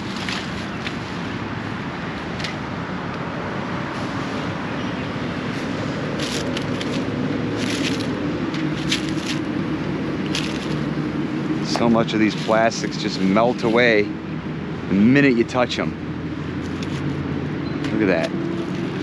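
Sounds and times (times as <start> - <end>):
crackles and snaps in brush: 0.0 - 1.0, 6.1 - 9.6, 10.2 - 10.9
highway traffic noise: 0.0 - 19.0.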